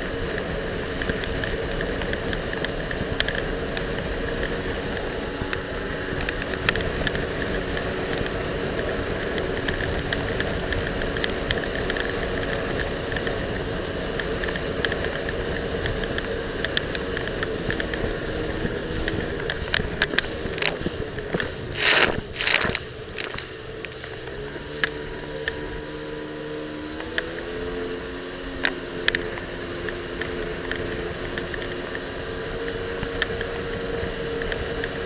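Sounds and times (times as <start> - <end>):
jet ski engine running: 0.0 - 35.0
camera rattling clicks: 20.5 - 20.9, 21.7 - 24.1.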